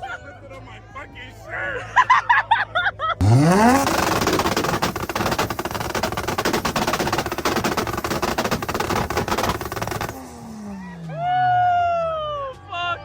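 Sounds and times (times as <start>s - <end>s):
exhaust pops and bangs: 3.2s - 10.3s
car engine revving: 3.2s - 10.6s.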